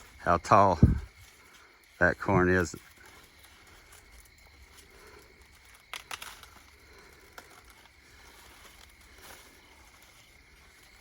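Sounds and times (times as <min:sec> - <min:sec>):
rustling of dry corn leaves: 0:00.0 - 0:11.0
sharp crackles: 0:00.0 - 0:11.0.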